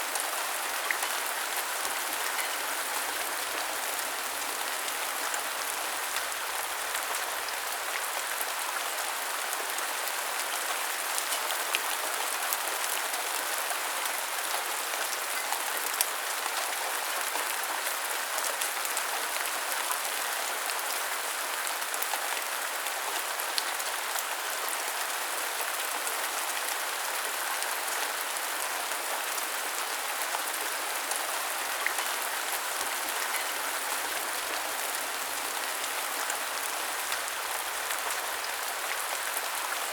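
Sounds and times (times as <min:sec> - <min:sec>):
rain pattering on hard surfaces: 0:00.1 - 0:39.9.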